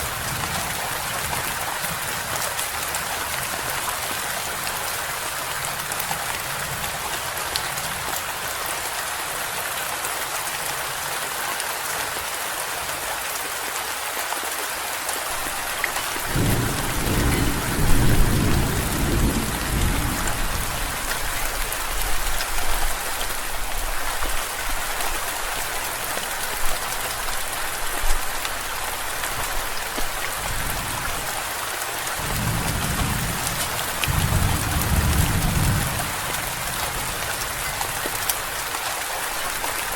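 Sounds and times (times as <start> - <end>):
steady rain: 0.0 - 39.9
low thunder rumbling: 16.2 - 21.4, 32.2 - 38.1.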